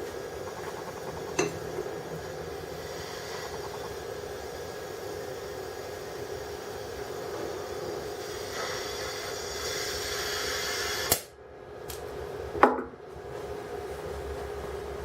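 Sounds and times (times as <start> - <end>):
welding torch gas hiss: 1.9 - 11.2.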